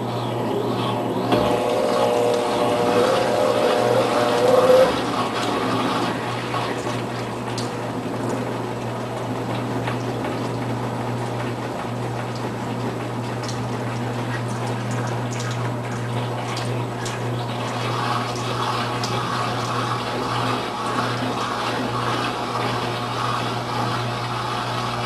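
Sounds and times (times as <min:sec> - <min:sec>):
washing machine low hum: 0:00.0 - 0:25.0
water sloshing in washing machine: 0:00.0 - 0:25.0
small splashes and ticks: 0:06.8 - 0:19.8.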